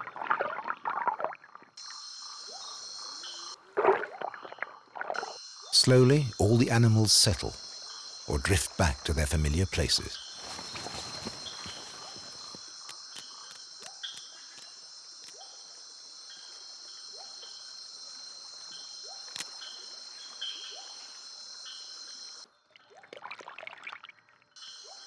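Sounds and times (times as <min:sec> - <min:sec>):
crickets buzzing: 0:05.4 - 0:20.3.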